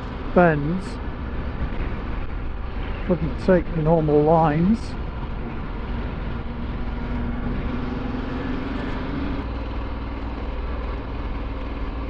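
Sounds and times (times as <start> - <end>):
motorcycle engine running: 0.0 - 12.0
road noise: 0.0 - 12.0.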